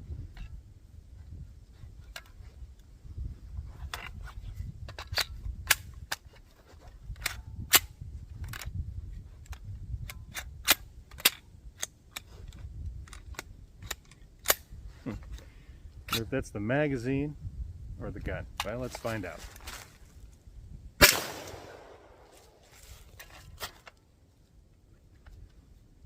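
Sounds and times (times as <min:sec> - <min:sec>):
steady low rumble: 0:14.7 - 0:23.2
pistol shots: 0:21.0 - 0:22.3.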